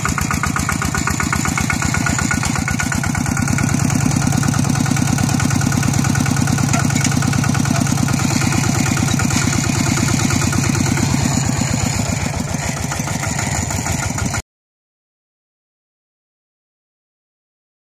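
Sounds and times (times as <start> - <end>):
tractor diesel engine running: 0.0 - 14.4.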